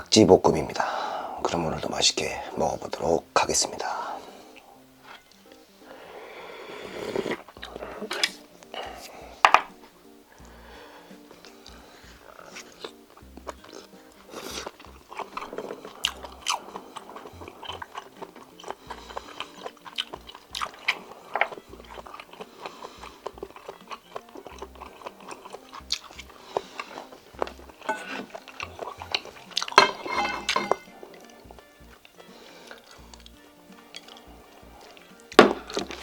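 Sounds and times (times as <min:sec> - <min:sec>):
chewing and biting food: 0:12.3 - 0:29.9.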